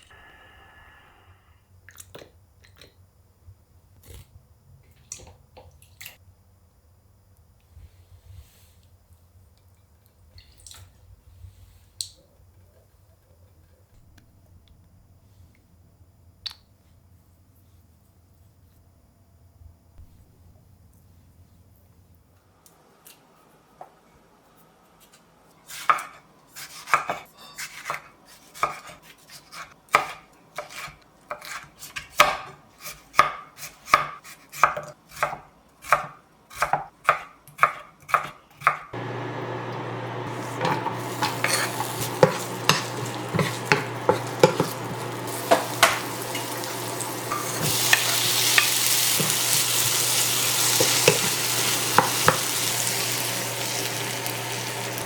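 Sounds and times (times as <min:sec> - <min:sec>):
steady hum: 0:00.0 - 0:01.7, 0:39.0 - 0:55.0
knife chopping on cutting board: 0:28.6 - 0:38.9, 0:40.4 - 0:50.0, 0:50.7 - 0:52.6
food sizzling in a pan: 0:39.0 - 0:55.0
stirring clicks: 0:40.4 - 0:55.0.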